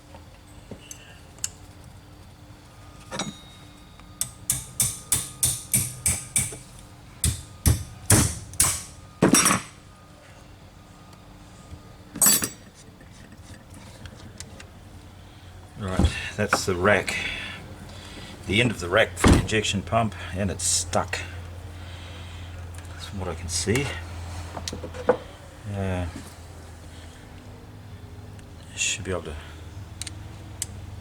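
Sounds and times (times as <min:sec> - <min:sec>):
hammer tapping on metal: 0:04.2 - 0:09.6.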